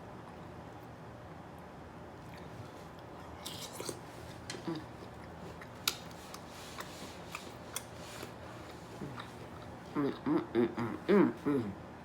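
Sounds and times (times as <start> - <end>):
person chewing food: 2.2 - 11.0.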